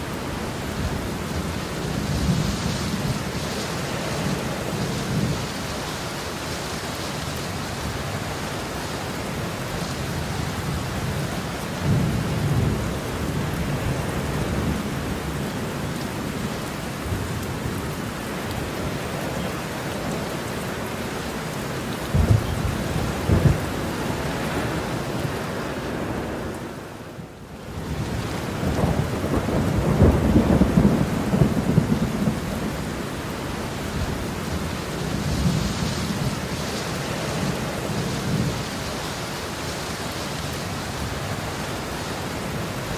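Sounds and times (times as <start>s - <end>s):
heavy rain pouring: 0.0s - 42.9s
thunder rumbling: 22.0s - 26.3s, 27.8s - 38.8s
sharp thunder claps: 22.1s - 23.8s.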